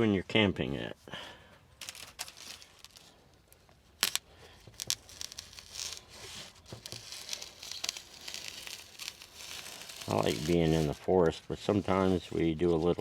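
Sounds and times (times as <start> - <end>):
foam rustling and crinkling: 1.8 - 13.0.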